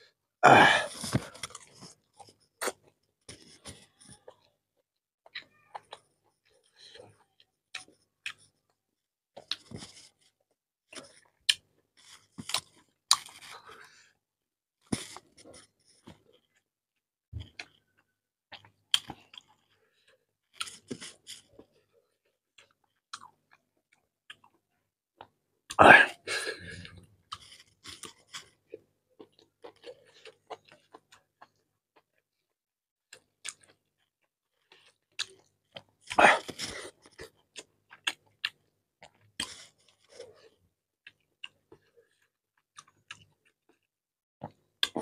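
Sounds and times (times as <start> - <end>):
man chewing: 9.4 - 14.0, 17.4 - 24.6, 25.2 - 32.1, 33.1 - 45.0.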